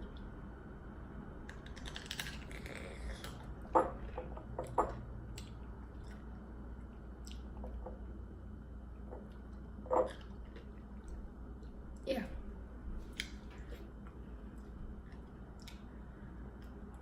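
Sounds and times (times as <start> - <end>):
crackly clicks: 1.4 - 3.4
chewing and crunching food: 1.4 - 8.1, 9.1 - 12.0, 13.0 - 17.0.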